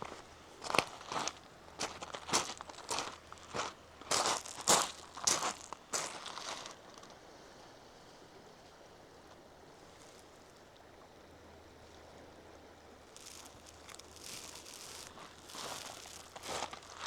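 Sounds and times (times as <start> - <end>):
footsteps crunching on trail: 0.0 - 6.8, 13.1 - 17.0
faint outdoor ambience: 0.0 - 17.0.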